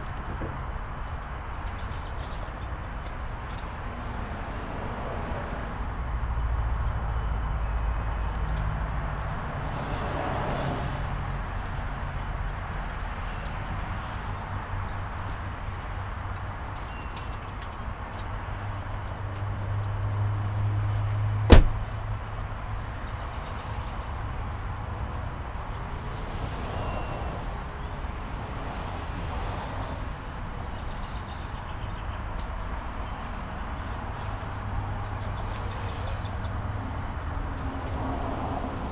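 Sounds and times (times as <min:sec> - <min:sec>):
loud slam: 0:21.5 - 0:21.8.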